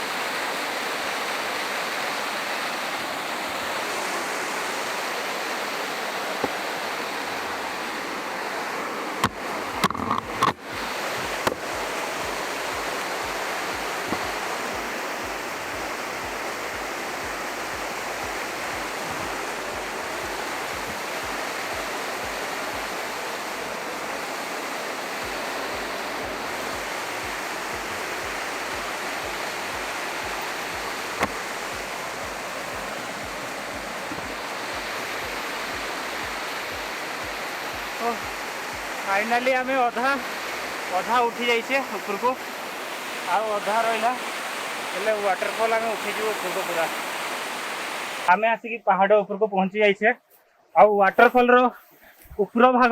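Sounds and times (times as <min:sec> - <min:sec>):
waterfall rushing: 0:00.0 - 0:48.5
sharp knocks or clicks: 0:31.2 - 0:31.4.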